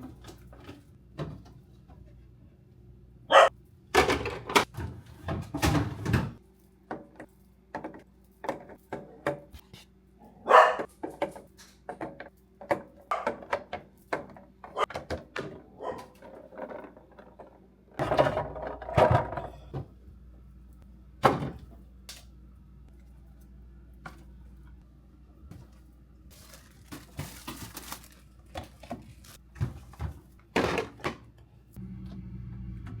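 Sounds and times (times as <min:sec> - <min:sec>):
containers clattering: 0:26.3 - 0:31.2.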